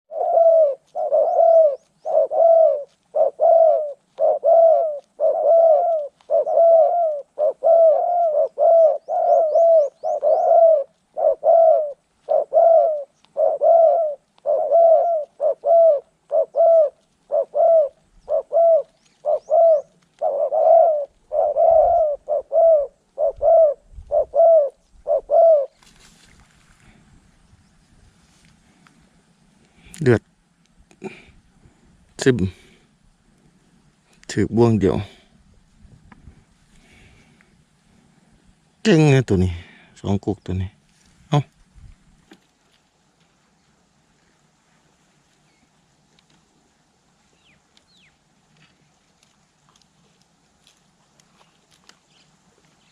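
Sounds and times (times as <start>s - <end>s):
dove cooing: 0.1s - 25.8s.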